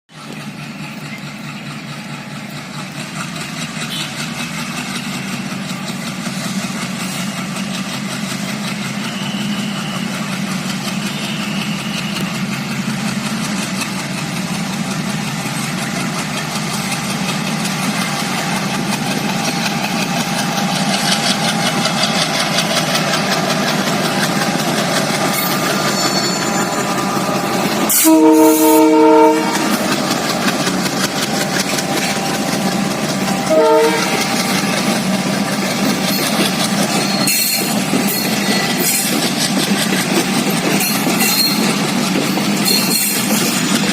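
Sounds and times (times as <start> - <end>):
locomotive horn blast: 27.8 - 30.1, 33.3 - 34.7.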